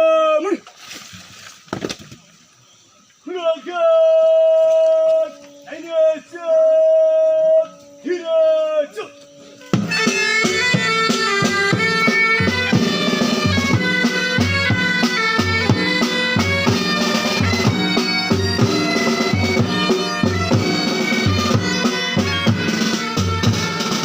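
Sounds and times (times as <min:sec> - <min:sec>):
bagpipes playing: 0:08.9 - 0:24.0
drum beats: 0:09.7 - 0:24.0.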